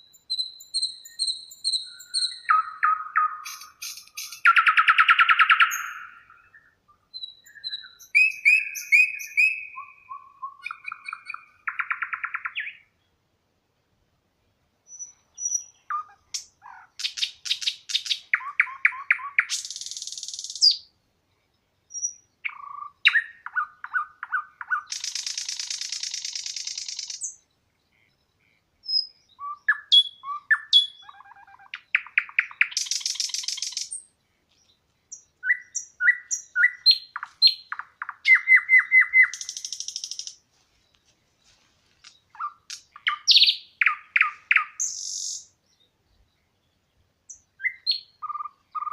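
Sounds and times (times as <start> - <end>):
songbird chirping with buzzy trill: 0.0 - 48.9.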